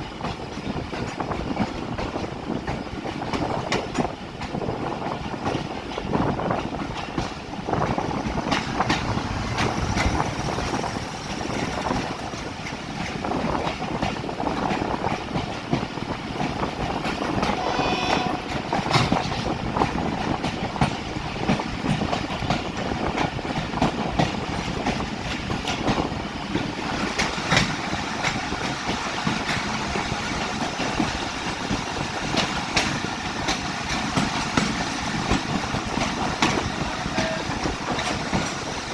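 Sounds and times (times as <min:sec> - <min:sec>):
train wheels clacking on rails: 0:00.0 - 0:38.9
brief high tone: 0:17.6 - 0:18.5.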